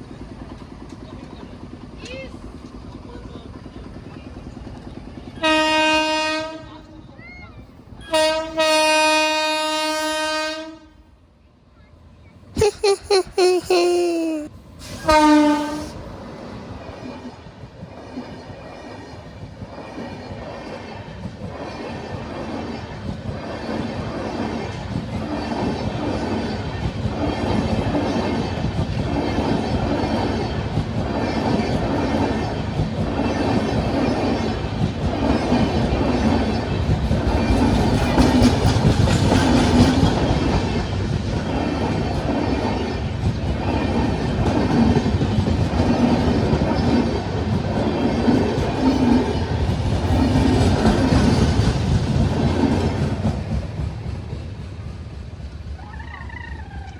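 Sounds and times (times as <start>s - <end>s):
train horn blast: 5.4s - 6.9s, 8.0s - 11.1s, 14.8s - 16.0s
train wheels clattering on rails: 16.5s - 56.9s.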